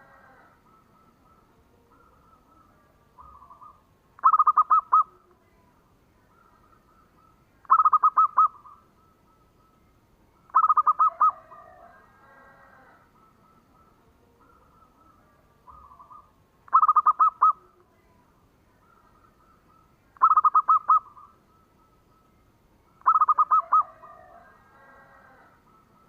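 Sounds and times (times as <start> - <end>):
dove cooing loudly: 0.0 - 5.3, 6.3 - 8.9, 10.5 - 17.8, 19.4 - 21.4, 23.0 - 25.8
faint cooing of other doves: 0.0 - 26.0.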